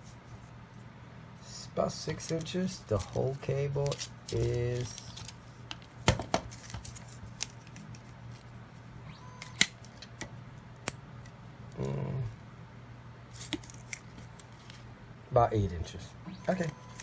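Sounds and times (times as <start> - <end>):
low hum: 10.5 - 17.0.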